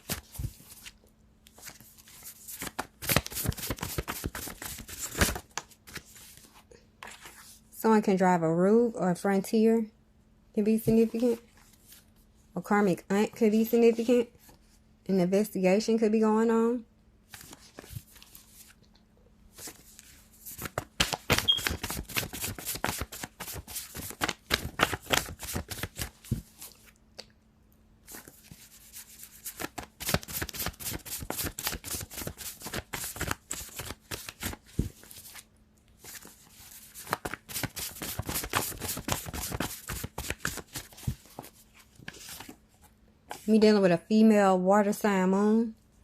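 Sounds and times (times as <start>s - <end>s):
cards being shuffled: 0.0s - 7.5s, 19.6s - 27.0s, 28.1s - 35.4s, 36.0s - 42.6s.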